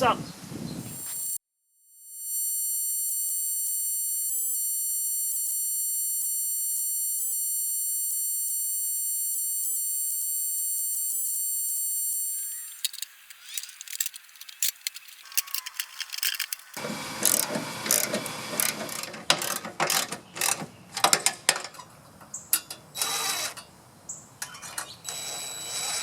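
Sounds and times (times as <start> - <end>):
tools clicking and rattling: 12.7 - 21.8.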